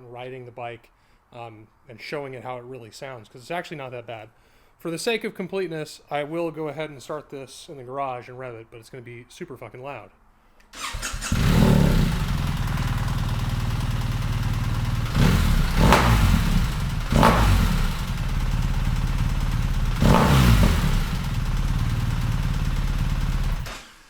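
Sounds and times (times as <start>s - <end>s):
motorcycle engine idling and revving: 10.8s - 23.9s
motorcycle engine starting: 10.8s - 24.0s.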